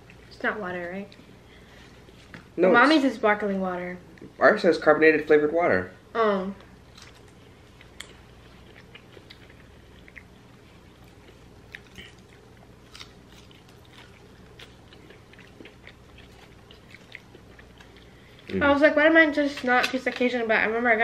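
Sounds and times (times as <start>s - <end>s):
people chewing french fries: 6.7s - 20.3s.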